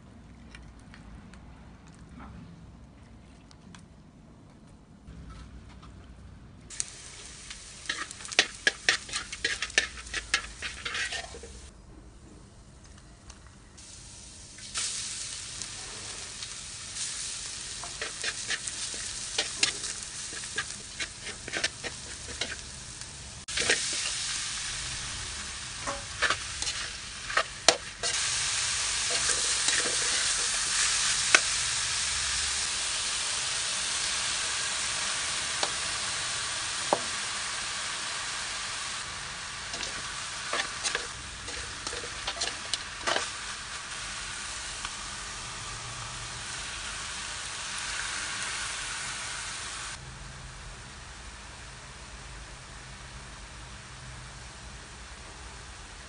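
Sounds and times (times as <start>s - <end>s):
garlic sizzling in oil: 6.7s - 11.7s, 13.8s - 50.0s
spatula scraping a pan: 7.8s - 11.7s, 17.8s - 22.7s, 23.5s - 24.2s, 25.8s - 28.2s, 29.0s - 31.4s, 39.7s - 43.4s.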